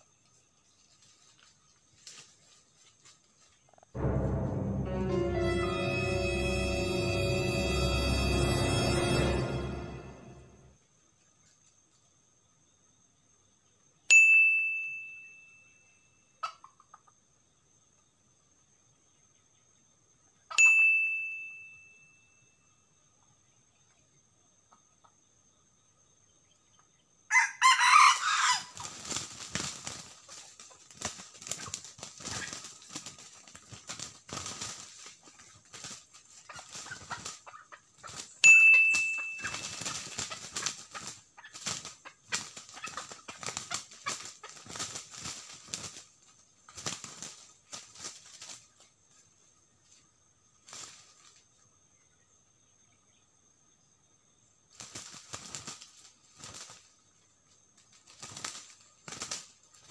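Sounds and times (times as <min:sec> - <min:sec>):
wings flapping and scuffling: 0:00.7 - 0:03.8, 0:28.0 - 0:49.2, 0:50.6 - 0:51.5, 0:54.7 - 0:57.1, 0:57.8 - 0:59.9.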